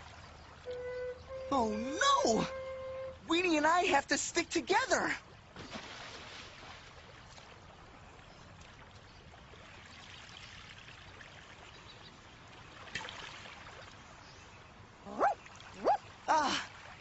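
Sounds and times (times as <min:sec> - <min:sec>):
sharp splash: 0:05.6 - 0:07.6, 0:12.8 - 0:13.9.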